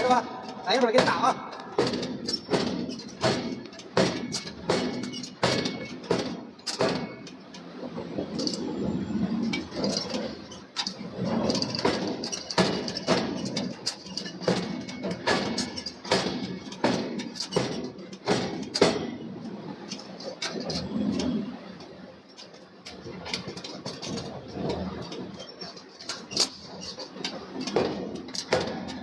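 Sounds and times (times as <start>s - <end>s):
hammer striking hot steel: 0.0s - 7.4s, 11.8s - 19.3s.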